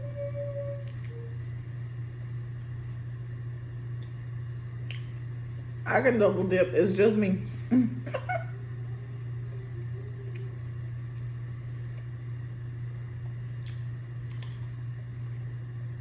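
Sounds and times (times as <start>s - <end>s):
steady low hum: 0.0s - 16.0s
wet chewing mouth sounds: 10.3s - 15.6s.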